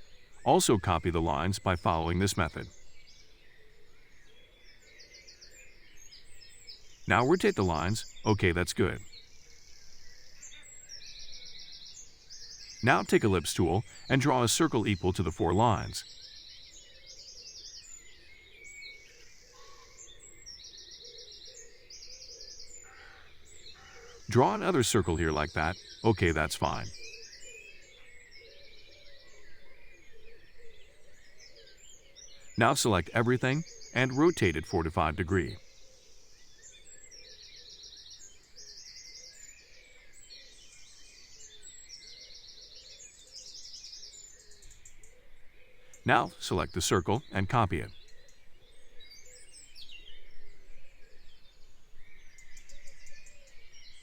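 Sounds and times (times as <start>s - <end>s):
low steady background hiss: 0.0s - 19.4s, 23.4s - 27.2s, 43.4s - 54.0s
faint birds chirping: 0.0s - 54.0s.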